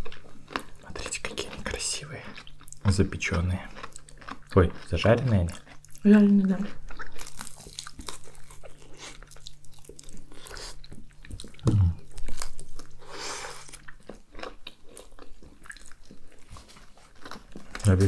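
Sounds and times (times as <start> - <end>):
biting and chewing chicken: 0.0 - 18.0
brief low vocal sound: 11.6 - 12.0.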